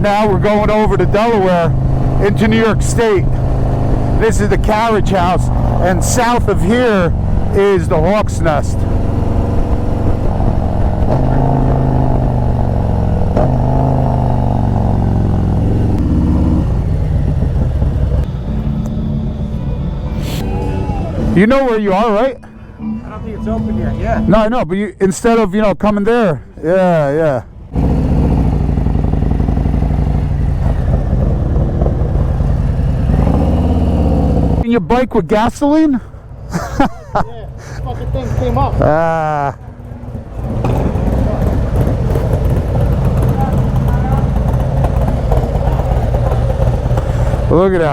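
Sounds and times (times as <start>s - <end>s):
motorcycle engine running: 0.0s - 20.2s, 27.6s - 34.6s, 37.7s - 47.9s.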